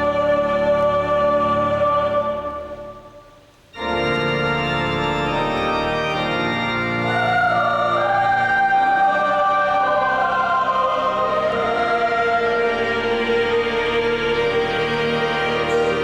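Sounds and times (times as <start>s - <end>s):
church organ playing chords: 3.7s - 16.0s.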